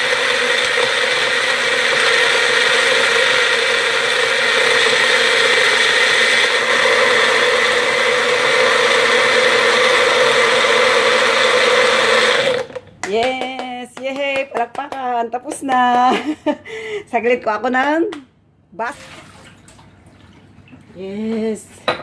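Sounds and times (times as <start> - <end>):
blender motor whining: 0.0 - 12.9.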